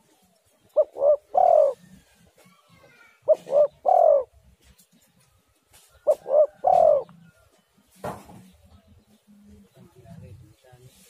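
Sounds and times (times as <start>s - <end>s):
dove cooing: 0.0s - 4.5s, 6.0s - 7.4s.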